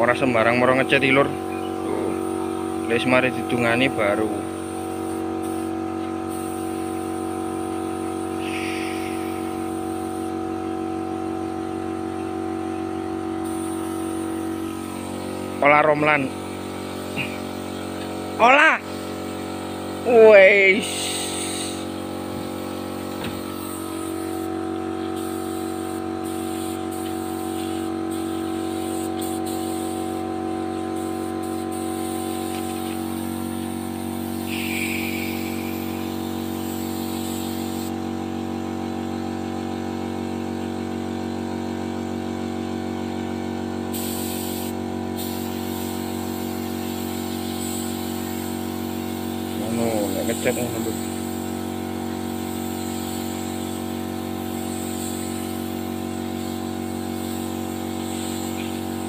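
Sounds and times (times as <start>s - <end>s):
air compressor humming: 0.0s - 59.0s
spray gun hissing: 6.3s - 7.1s, 8.0s - 10.3s, 13.4s - 15.6s, 16.4s - 18.3s, 18.9s - 24.6s, 25.2s - 30.2s, 31.0s - 37.9s, 43.9s - 59.0s.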